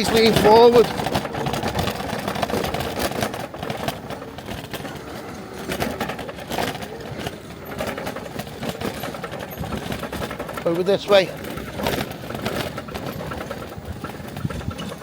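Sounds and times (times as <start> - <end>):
rattles and knocks: 0.0 - 15.0
scooter running: 0.0 - 15.0.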